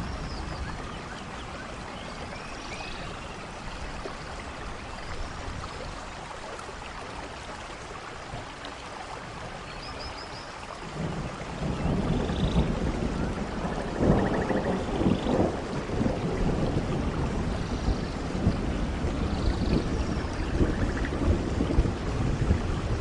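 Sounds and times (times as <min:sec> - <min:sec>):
steady rainfall: 0:00.0 - 0:23.0
thunder rumbling: 0:10.9 - 0:23.0.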